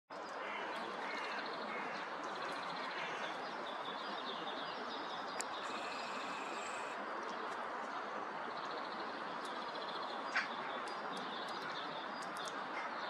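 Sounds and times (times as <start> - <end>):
small birds chirping: 0.1 - 13.0
outdoor background hiss: 0.4 - 12.4.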